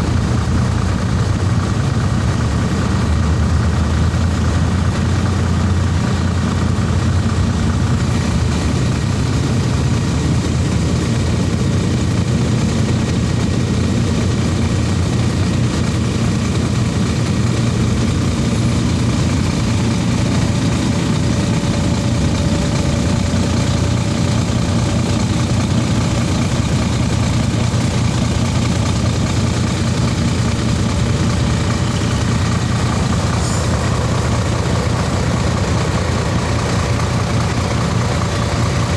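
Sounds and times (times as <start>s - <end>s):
heavy truck engine running: 0.0s - 38.9s.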